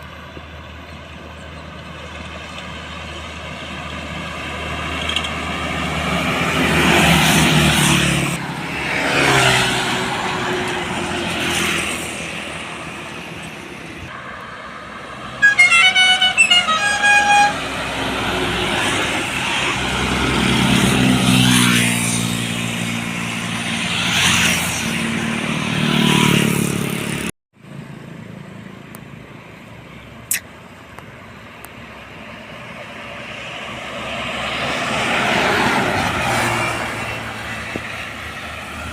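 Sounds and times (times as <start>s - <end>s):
road vehicles passing: 0.0s - 38.9s
horn short toots: 15.4s - 18.1s.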